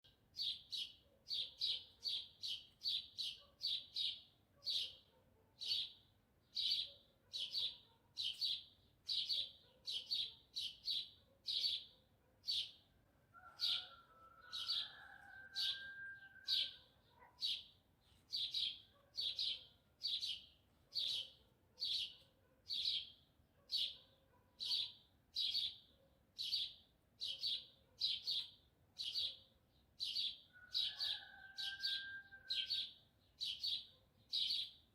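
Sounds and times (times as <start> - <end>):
small bird chirping: 0.3 - 12.9, 15.7 - 24.0, 24.6 - 30.5, 32.6 - 34.9
rooster crowing: 13.3 - 16.8, 30.6 - 32.8.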